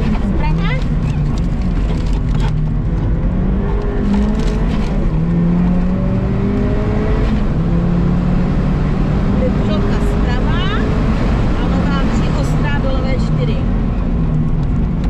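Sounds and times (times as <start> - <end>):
car engine revving: 0.0 - 15.0
road noise: 0.0 - 15.0.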